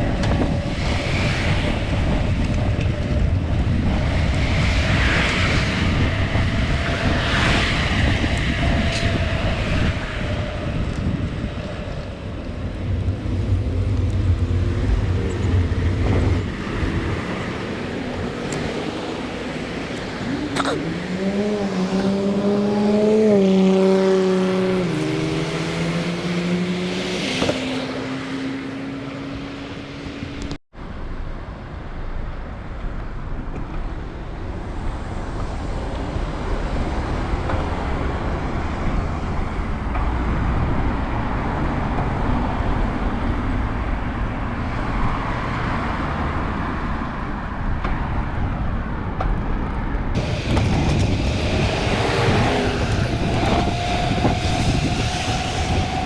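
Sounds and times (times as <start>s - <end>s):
passing vehicle engine hum: 0.0s - 30.6s, 50.1s - 56.0s
road and wind rumble: 0.0s - 56.0s.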